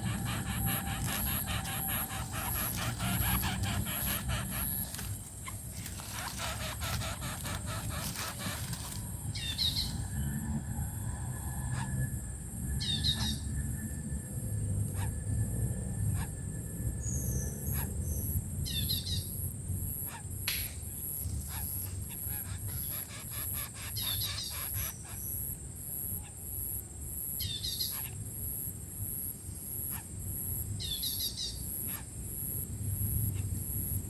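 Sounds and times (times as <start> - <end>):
small bird chirping: 0.0 - 10.1, 21.0 - 26.3
pulsing high-pitched whine: 0.0 - 17.8.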